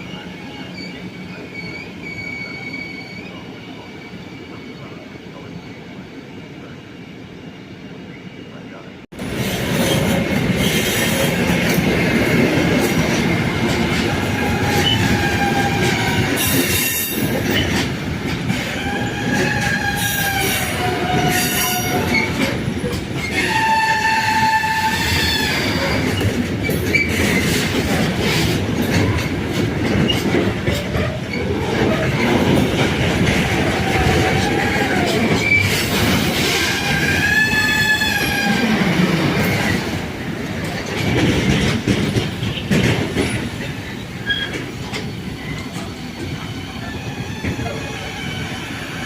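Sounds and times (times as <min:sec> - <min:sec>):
train wheels squealing: 0:00.0 - 0:06.0, 0:14.2 - 0:17.8, 0:34.2 - 0:36.0, 0:43.3 - 0:49.0
train rumble: 0:08.7 - 0:49.0.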